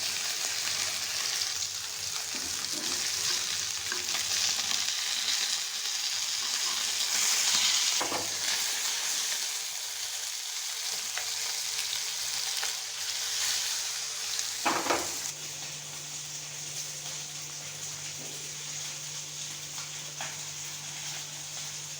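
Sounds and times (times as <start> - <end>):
food sizzling in oil: 0.0 - 21.9
knocks on pan: 14.6 - 15.2.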